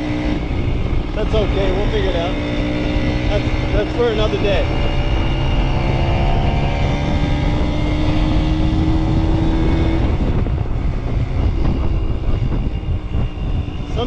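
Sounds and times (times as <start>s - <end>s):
low wind rumble: 0.0s - 14.0s
two-stroke motorcycle engine running: 0.0s - 14.0s.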